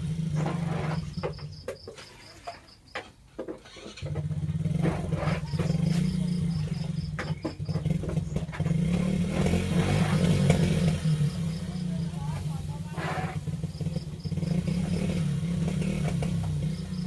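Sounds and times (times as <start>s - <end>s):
small engine running: 0.0s - 1.7s, 3.6s - 17.0s
faint insect chirps: 5.3s - 7.7s, 10.2s - 17.0s.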